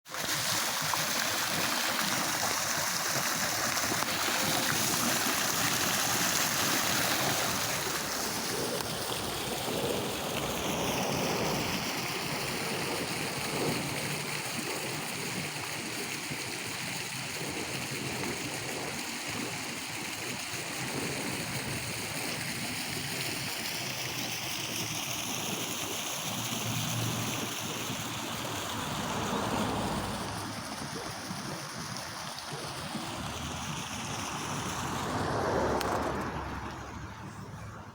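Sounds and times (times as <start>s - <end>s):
waterfall rushing: 0.4s - 8.4s, 26.6s - 30.8s.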